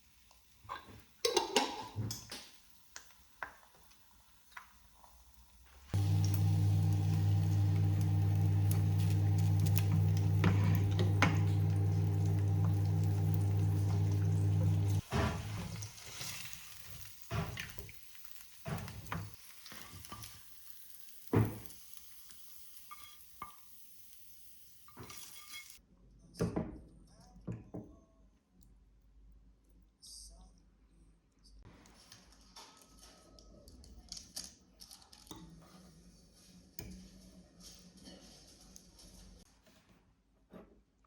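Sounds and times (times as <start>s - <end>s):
low electric appliance hum: 6.0s - 15.9s.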